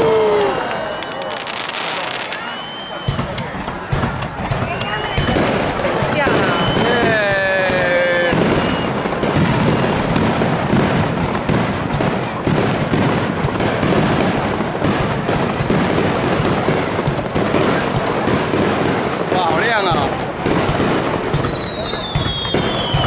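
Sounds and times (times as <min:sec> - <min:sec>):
fireworks bursting and crackling: 0:00.0 - 0:23.0.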